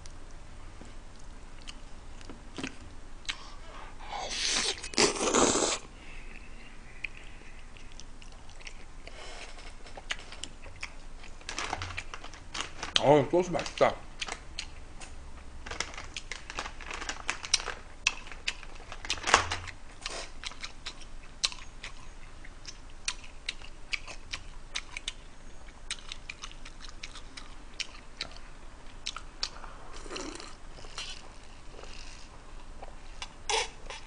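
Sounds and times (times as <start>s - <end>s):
person chewing food: 1.1s - 3.6s, 4.2s - 11.4s, 19.9s - 34.0s.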